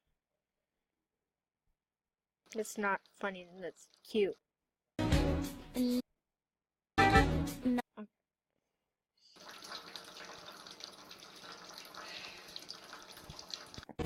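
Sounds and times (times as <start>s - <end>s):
running water: 9.4s - 14.0s.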